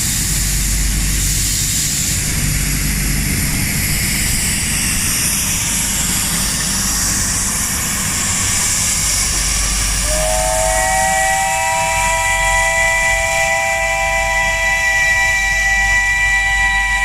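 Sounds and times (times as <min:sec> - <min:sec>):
steam locomotive hissing: 0:00.0 - 0:17.0
chime steam whistle: 0:09.7 - 0:17.0.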